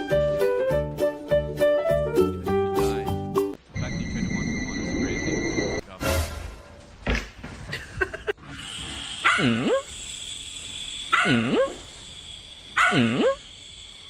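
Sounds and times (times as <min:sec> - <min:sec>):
dog barking: 0:09.2 - 0:09.8, 0:11.1 - 0:11.8, 0:12.8 - 0:13.4.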